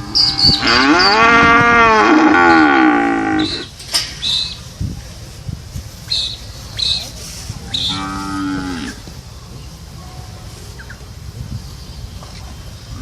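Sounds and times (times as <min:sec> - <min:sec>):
cow mooing: 0:00.0 - 0:03.7, 0:07.8 - 0:09.0.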